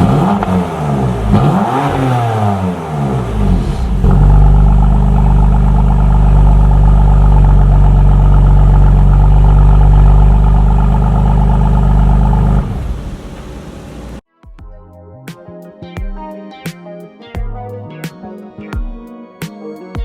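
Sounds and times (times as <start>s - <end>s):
car engine revving: 0.0s - 14.2s.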